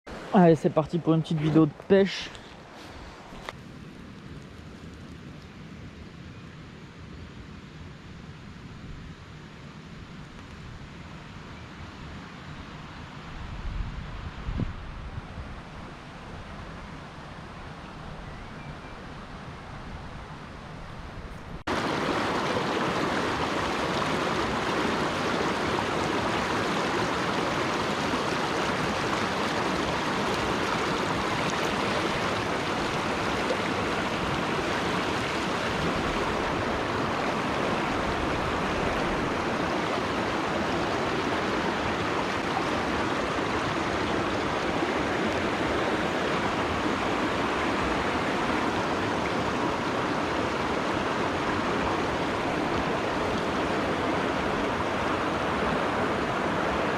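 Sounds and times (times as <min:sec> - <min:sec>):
stream water rushing: 0:00.1 - 0:04.2, 0:21.6 - 0:56.9.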